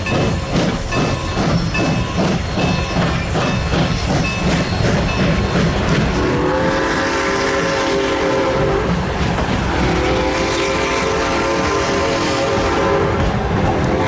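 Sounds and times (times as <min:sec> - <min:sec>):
train rumbling on rails: 0:00.0 - 0:14.0
train horn blast: 0:06.1 - 0:14.0.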